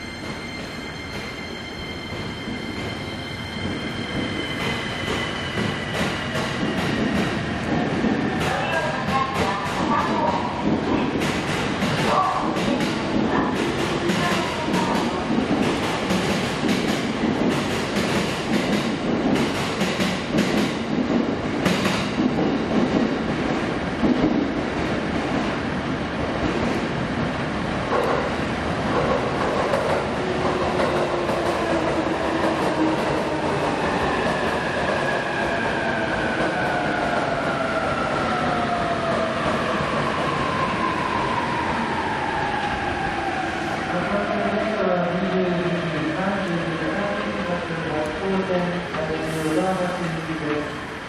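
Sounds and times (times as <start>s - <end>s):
train wheels clacking on rail joints: 3.6s - 23.1s.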